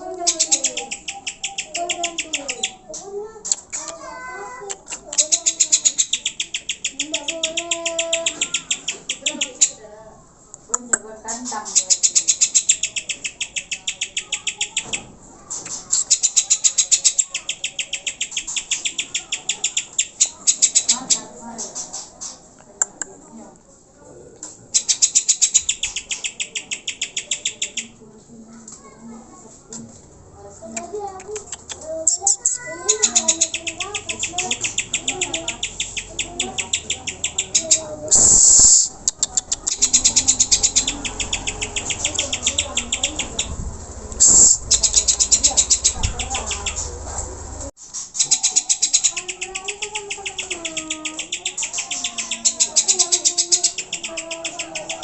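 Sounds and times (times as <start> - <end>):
bird chattering high notes: 0.2 - 2.9, 5.1 - 9.8, 11.6 - 15.0, 15.8 - 21.3, 24.7 - 28.0, 31.4 - 43.6, 44.2 - 47.0, 48.1 - 55.0
harsh bird rasp: 31.2 - 43.6, 47.8 - 55.0.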